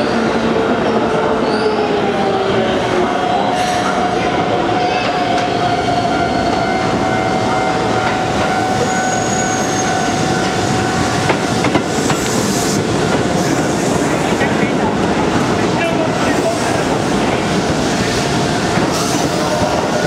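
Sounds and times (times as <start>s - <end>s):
train wheels squealing: 0.0s - 2.3s, 4.8s - 12.8s.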